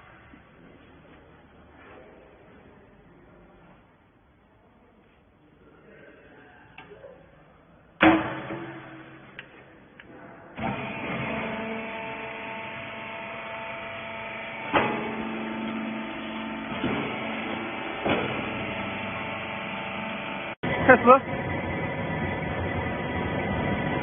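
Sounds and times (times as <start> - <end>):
baler motor humming: 10.6 - 24.0.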